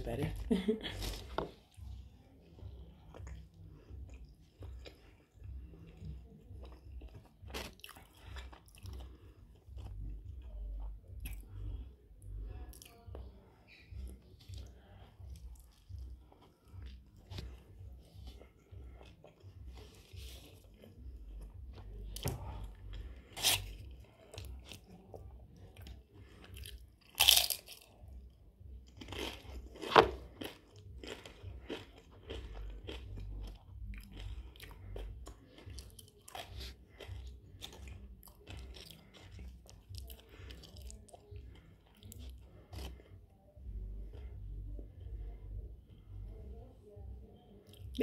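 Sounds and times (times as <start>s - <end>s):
sharp chewing crunches: 25.9s - 27.9s, 28.9s - 43.1s.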